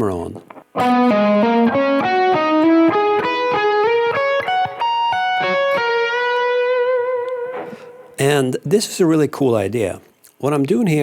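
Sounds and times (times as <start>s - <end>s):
electric guitar arpeggio: 0.7s - 8.2s.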